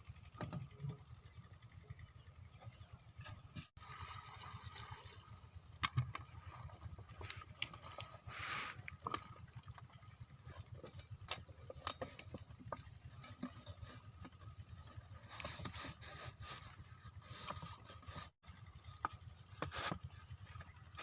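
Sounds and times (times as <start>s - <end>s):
diesel pump engine chugging: 0.0s - 3.7s, 5.2s - 21.0s
water pouring: 3.8s - 5.8s.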